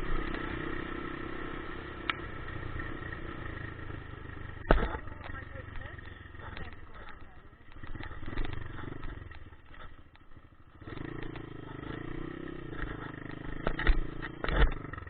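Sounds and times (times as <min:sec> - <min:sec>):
dirt bike engine running: 0:00.0 - 0:15.0
loud thumps: 0:04.6 - 0:05.4.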